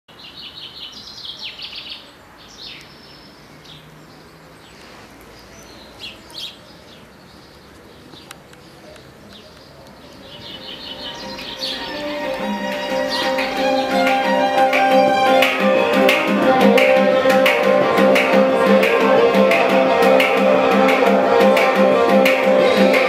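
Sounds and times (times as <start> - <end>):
small birds chirping: 0.1 - 14.1.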